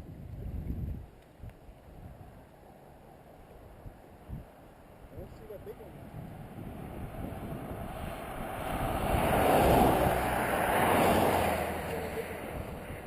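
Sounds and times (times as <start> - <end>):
vehicle passing: 5.9 - 13.0.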